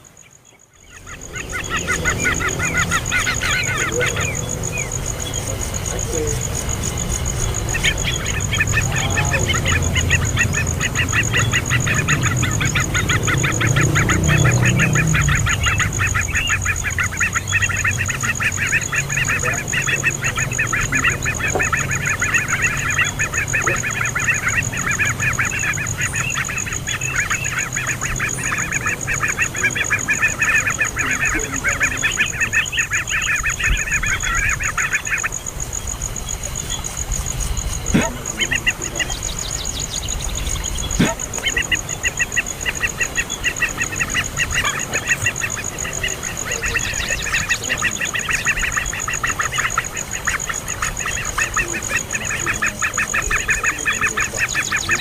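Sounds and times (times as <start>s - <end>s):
bird chattering: 0.0s - 55.0s.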